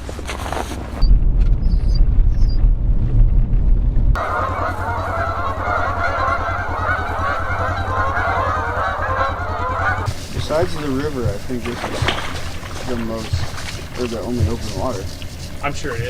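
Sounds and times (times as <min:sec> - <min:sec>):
low rumble: 0:00.6 - 0:15.3
flock of geese honking: 0:04.2 - 0:16.0.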